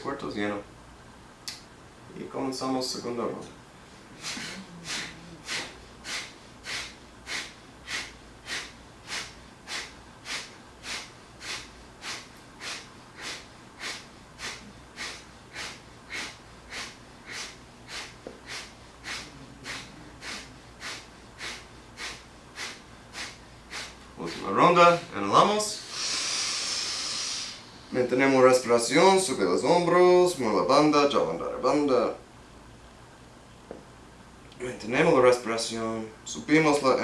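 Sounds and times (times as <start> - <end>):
forceful nasal exhalations: 4.1 - 24.6, 25.8 - 28.0.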